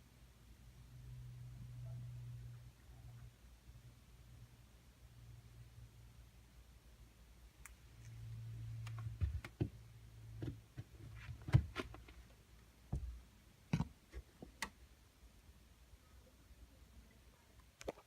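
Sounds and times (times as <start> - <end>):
sharp clicks and light knocks: 8.8 - 9.8, 17.6 - 18.0.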